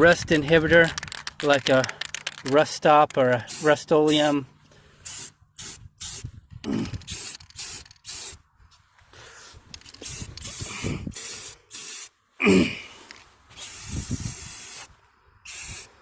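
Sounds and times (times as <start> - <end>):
aerosol spray hissing bursts: 5.0 - 6.2, 7.1 - 8.4, 10.0 - 12.1, 13.6 - 14.9, 15.5 - 16.0.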